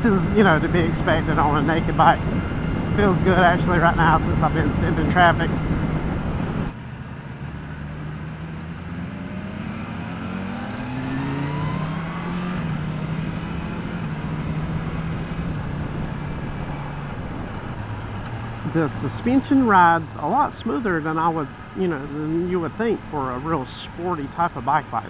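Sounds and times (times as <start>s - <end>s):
wind noise on microphone: 0.0s - 6.8s, 10.6s - 19.2s
motorcycle engine accelerating: 0.0s - 22.1s.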